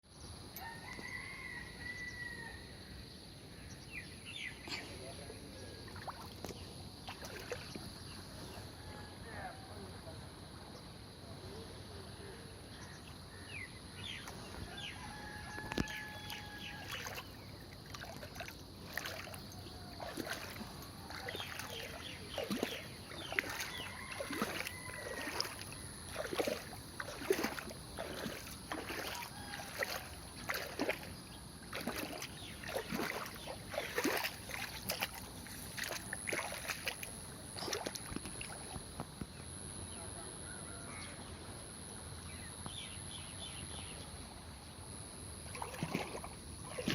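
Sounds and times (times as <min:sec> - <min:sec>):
rooster crowing: 0:00.6 - 0:02.7, 0:08.6 - 0:09.7, 0:14.6 - 0:17.3, 0:22.6 - 0:26.7, 0:28.8 - 0:31.0, 0:40.4 - 0:41.2
steady high-pitched hiss: 0:01.5 - 0:20.0, 0:34.4 - 0:45.6.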